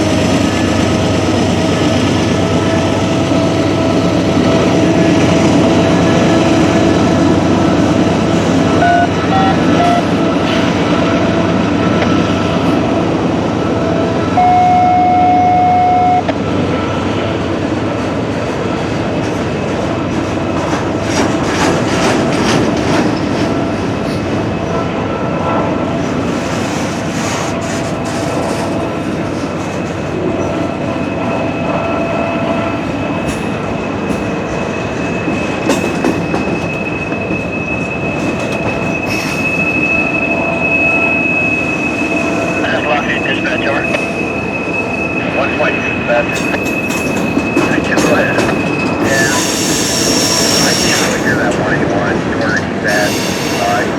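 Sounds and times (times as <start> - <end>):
train wheels clattering over rails: 17.5 - 24.5, 33.0 - 39.8, 46.2 - 53.9
loud wheel squeal: 36.2 - 42.6, 48.6 - 51.3, 52.9 - 53.9.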